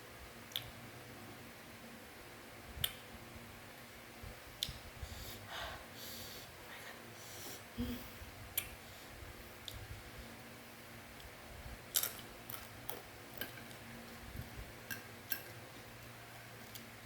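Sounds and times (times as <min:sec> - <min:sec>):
soft breathing: 0:05.0 - 0:09.3
crunchy snack clicks and crunches: 0:11.9 - 0:13.8.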